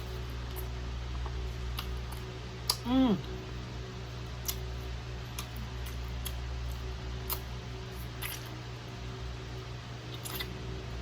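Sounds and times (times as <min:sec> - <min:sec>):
steady low hum: 0:00.0 - 0:11.0
wet mouth clicks and smacks: 0:07.2 - 0:07.5.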